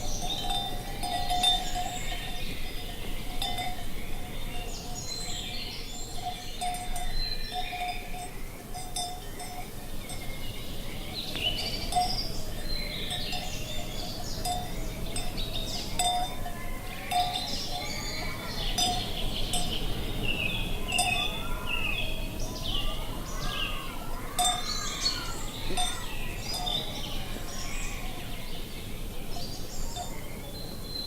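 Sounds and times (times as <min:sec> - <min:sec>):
cattle bells clanking: 0:00.0 - 0:21.6, 0:24.2 - 0:27.4
birds singing: 0:00.0 - 0:31.0.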